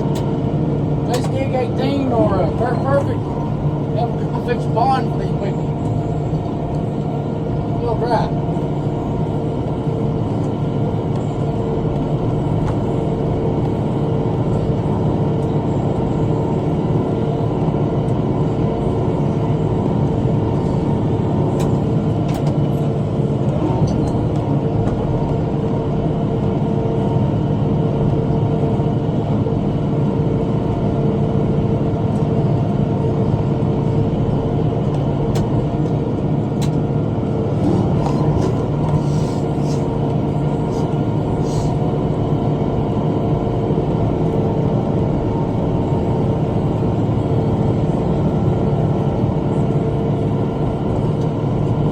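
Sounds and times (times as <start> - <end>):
tractor engine droning: 0.0 - 27.3, 34.3 - 42.2.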